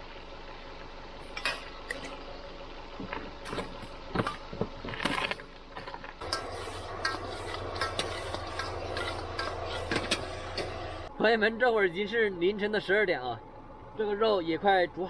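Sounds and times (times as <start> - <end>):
steady low hum: 0.0 - 15.0
cooking pots and utensils clinking: 6.2 - 11.1.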